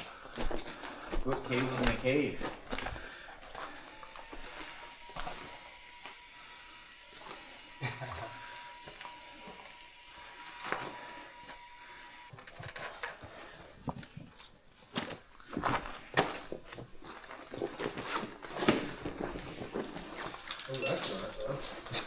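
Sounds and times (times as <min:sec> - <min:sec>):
footsteps on mud and rock: 0:00.0 - 0:06.3, 0:13.4 - 0:22.0.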